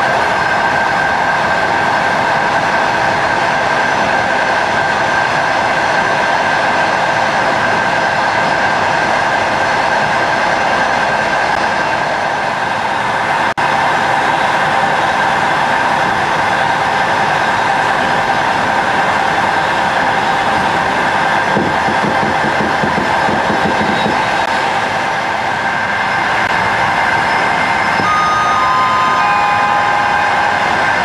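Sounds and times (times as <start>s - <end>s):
constant train whine: 0.0s - 31.0s
train carriage rush and rumble: 0.0s - 31.0s
rhythmic wheel clatter: 14.2s - 25.0s.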